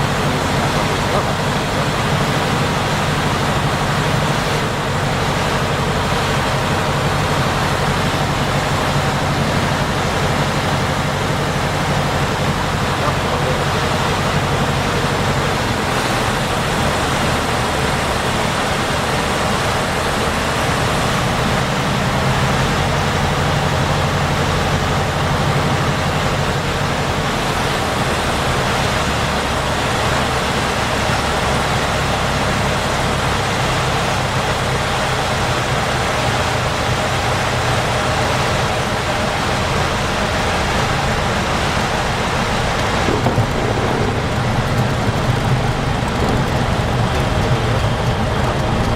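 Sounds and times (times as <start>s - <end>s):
aircraft engine drone in cabin: 0.0s - 48.9s
rushing air: 42.3s - 48.4s.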